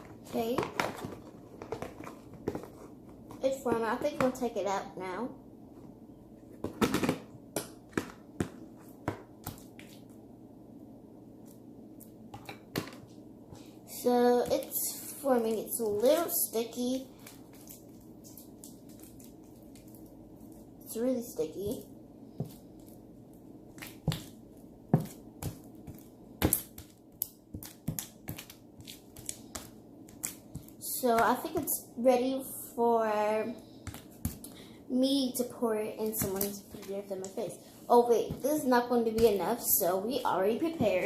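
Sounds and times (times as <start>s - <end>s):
slime squelching by hand: 13.6s - 31.8s.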